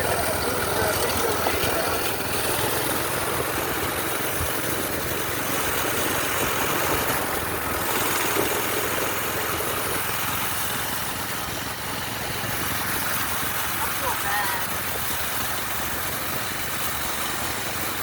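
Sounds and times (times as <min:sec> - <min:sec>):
small engine running: 0:00.0 - 0:18.0
wind and road noise: 0:00.0 - 0:18.0.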